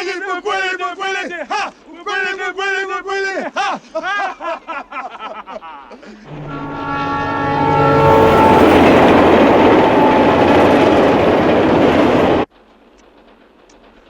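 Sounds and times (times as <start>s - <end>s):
train horn: 6.3s - 12.4s
train rushing past: 6.3s - 14.0s
wheel clatter on rails: 8.0s - 14.0s.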